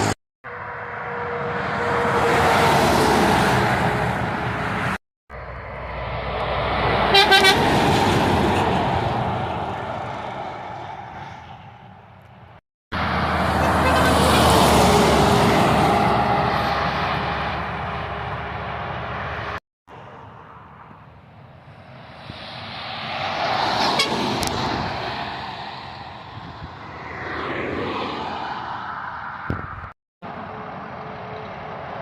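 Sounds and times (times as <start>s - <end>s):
heavy trucks driving past: 0.0s - 29.4s, 30.2s - 32.0s
truck horn: 7.0s - 7.8s, 13.2s - 16.6s, 23.9s - 24.2s.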